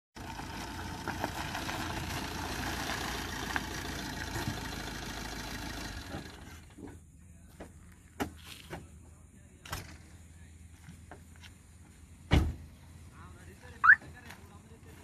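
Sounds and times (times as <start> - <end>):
car engine running: 0.2 - 7.1.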